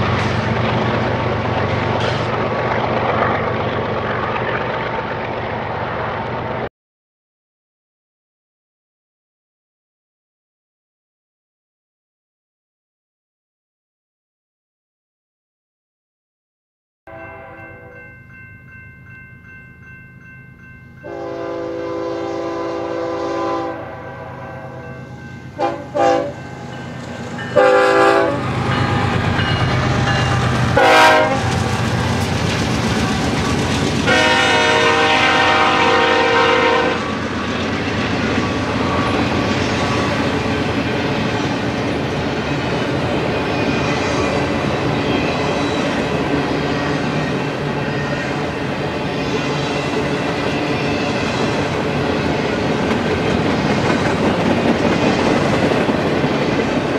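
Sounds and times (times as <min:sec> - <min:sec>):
freight train rumbling past: 0:00.0 - 0:06.7, 0:17.1 - 0:56.9
locomotive air horn blasts: 0:17.1 - 0:17.7, 0:21.0 - 0:25.0, 0:25.6 - 0:26.4, 0:27.6 - 0:29.1, 0:30.8 - 0:31.5, 0:34.1 - 0:37.1.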